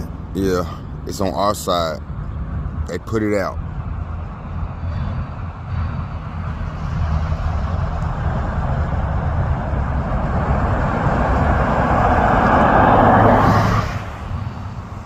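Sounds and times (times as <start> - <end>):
road traffic noise: 0.0 - 15.0
vehicle engine rumble: 0.0 - 15.0
rushing sound: 3.5 - 15.0.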